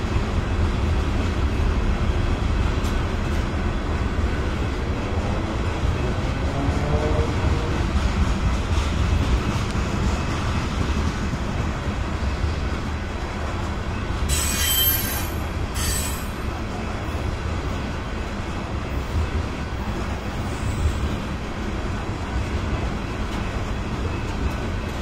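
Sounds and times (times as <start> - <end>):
train wheels rumbling on rails: 0.0 - 25.0
train wheels squealing: 14.0 - 16.8, 20.3 - 21.3.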